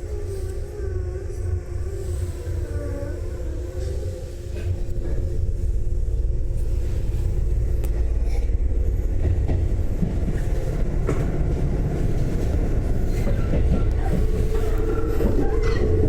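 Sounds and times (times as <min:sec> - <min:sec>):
train running at speed: 0:00.0 - 0:16.0.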